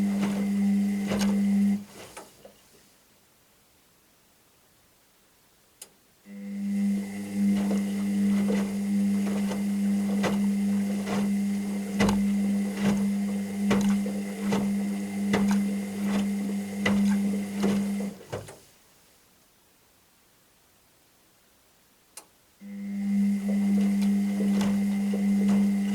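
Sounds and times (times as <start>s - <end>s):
washing machine motor humming: 0.0s - 2.2s, 6.3s - 18.6s, 22.6s - 25.9s
washing machine drum knocking: 7.5s - 18.1s, 23.4s - 25.9s.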